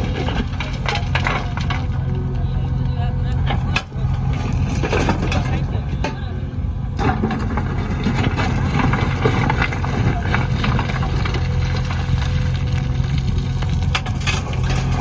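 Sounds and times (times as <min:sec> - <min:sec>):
knocks and clatter: 0:00.0 - 0:02.2, 0:07.0 - 0:15.0
diesel engine running: 0:00.0 - 0:15.0.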